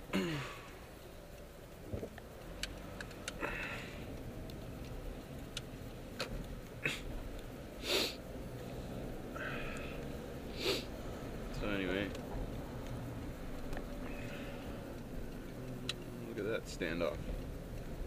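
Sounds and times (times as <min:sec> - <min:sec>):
car road and engine rumble: 0:00.0 - 0:18.0
light clicks and ticks: 0:00.6 - 0:07.6, 0:11.4 - 0:18.0
breathy puff: 0:07.8 - 0:08.2, 0:10.6 - 0:10.9
person sniffing: 0:07.8 - 0:08.2, 0:09.4 - 0:11.0.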